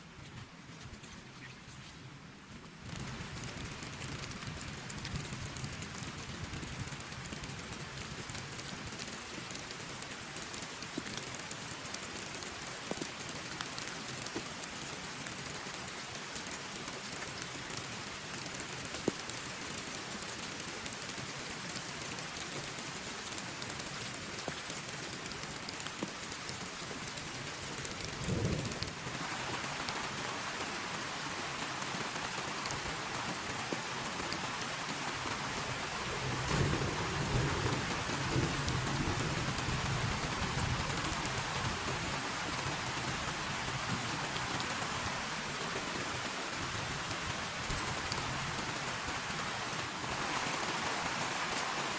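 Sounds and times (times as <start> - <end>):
heavy rain falling: 2.9 - 51.9
thunder rumbling: 27.9 - 29.6, 35.9 - 42.2.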